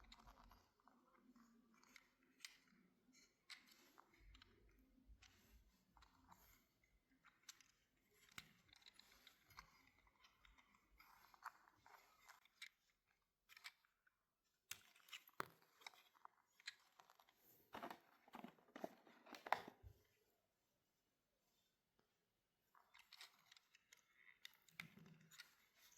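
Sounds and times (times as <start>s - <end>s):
handling clicks and rustling: 14.7s - 20.1s.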